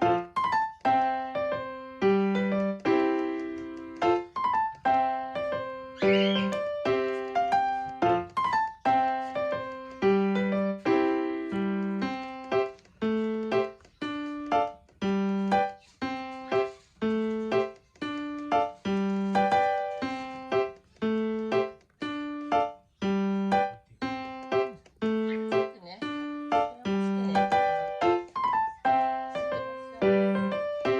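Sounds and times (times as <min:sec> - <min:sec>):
piano tune: 0:00.0 - 0:30.9.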